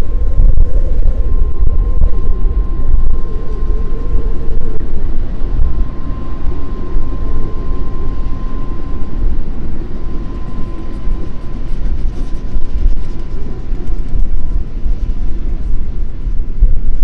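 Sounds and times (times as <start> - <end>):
thin high tone: 0.0 - 12.6
wind buffeting microphone: 0.0 - 17.0.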